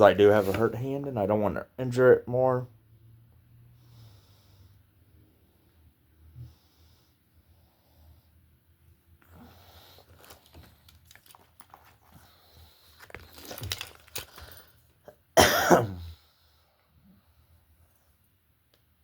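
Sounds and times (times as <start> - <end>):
person coughing: 15.4 - 16.2.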